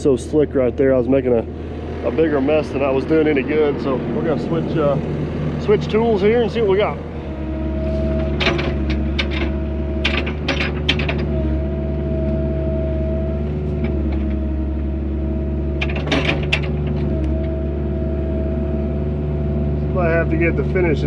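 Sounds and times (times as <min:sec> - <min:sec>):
steady whine: 0:00.0 - 0:15.2
excavator engine running: 0:00.0 - 0:21.0
metallic clanks and clicks: 0:08.2 - 0:11.4, 0:15.8 - 0:17.4.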